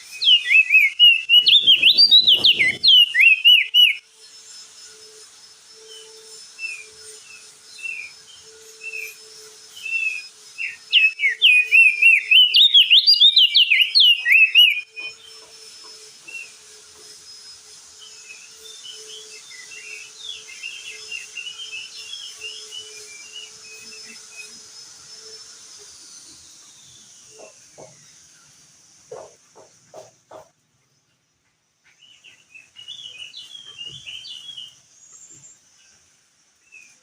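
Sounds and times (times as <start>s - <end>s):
bird chirping and warbling: 0.0s - 4.4s, 5.8s - 15.5s, 31.8s - 36.0s.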